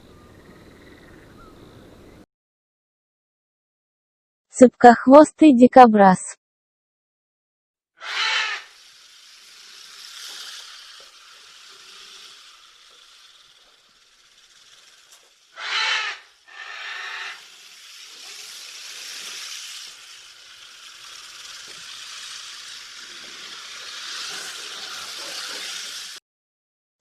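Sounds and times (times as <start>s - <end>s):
faint steady hiss: 0.0s - 2.2s
porcupine breathy calls: 0.0s - 2.2s, 15.5s - 17.6s.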